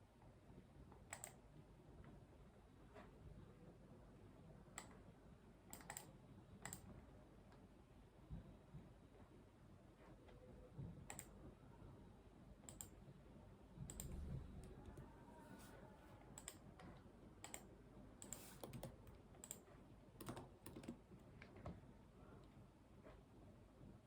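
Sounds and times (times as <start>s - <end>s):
keyboard and mouse clicks: 1.1s - 1.4s, 5.7s - 6.9s, 11.0s - 11.3s, 12.6s - 13.0s, 13.8s - 15.0s, 16.4s - 21.8s.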